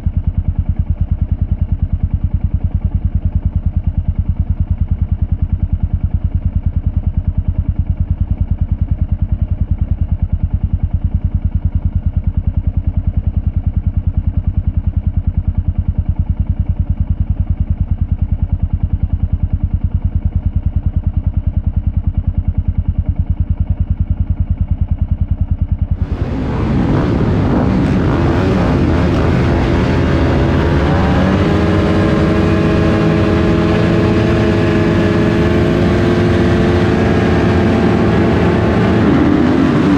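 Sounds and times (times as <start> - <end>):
muffled dirt bike engine: 0.0 - 39.9
dirt bike engine revving: 26.0 - 39.9.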